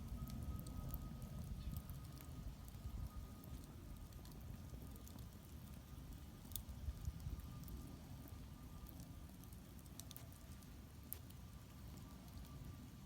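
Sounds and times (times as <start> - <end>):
fire rumbling: 0.0 - 13.0
wood crackling and popping: 0.0 - 13.0.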